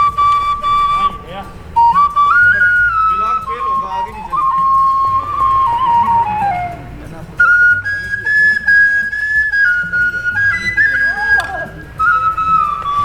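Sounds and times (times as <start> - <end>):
flute playing slow melody: 0.0 - 13.0.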